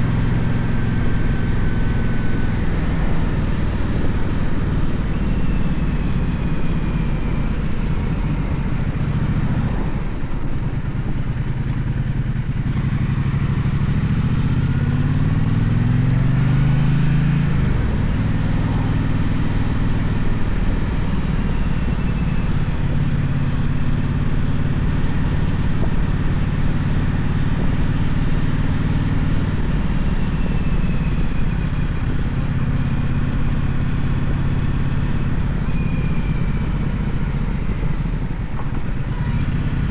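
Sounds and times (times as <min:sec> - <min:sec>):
motorcycle engine accelerating: 0:00.0 - 0:39.9
road noise: 0:00.0 - 0:39.9.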